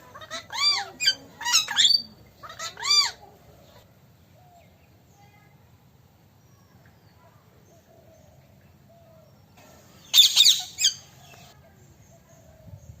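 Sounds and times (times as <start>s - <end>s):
parrot calling: 0.0s - 3.3s, 10.1s - 11.1s.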